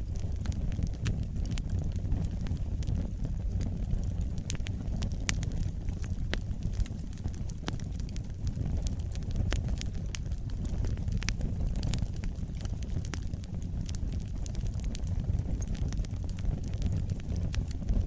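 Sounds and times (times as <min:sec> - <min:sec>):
fire crackles and pops: 0:00.0 - 0:18.0
fireplace flames rumbling: 0:00.0 - 0:18.0.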